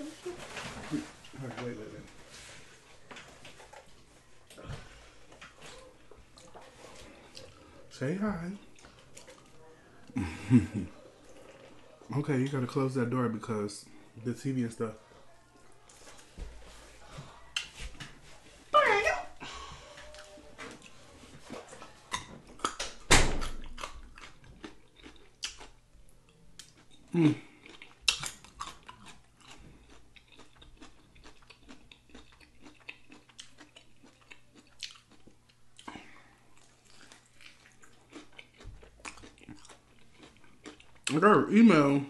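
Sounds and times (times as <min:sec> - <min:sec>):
chewing and biting chicken wings: 0:22.1 - 0:41.2.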